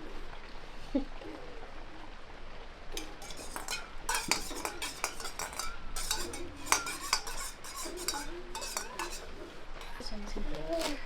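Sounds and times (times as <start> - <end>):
metal utensils and dishes clinking: 3.0 - 11.0.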